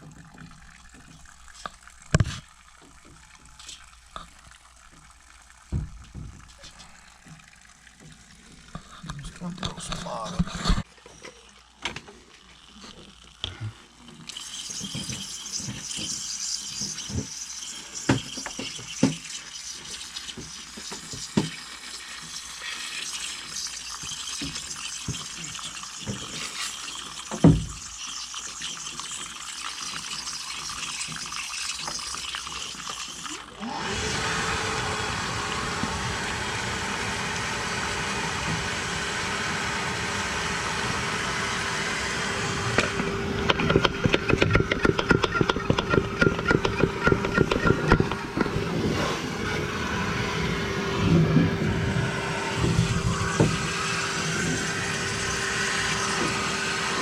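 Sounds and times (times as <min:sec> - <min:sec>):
motor whining: 0:33.5 - 0:57.0
knocks and rattles: 0:43.4 - 0:48.6.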